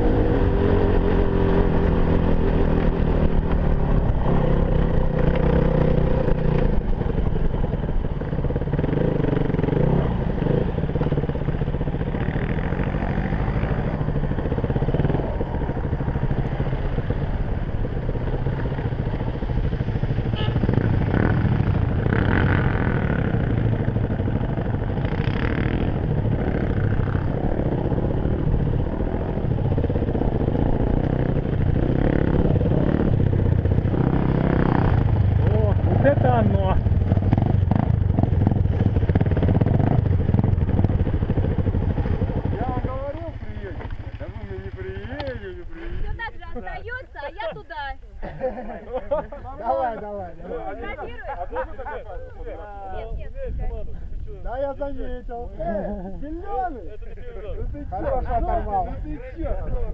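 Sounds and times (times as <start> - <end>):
dirt bike engine revving: 0.0 - 46.0.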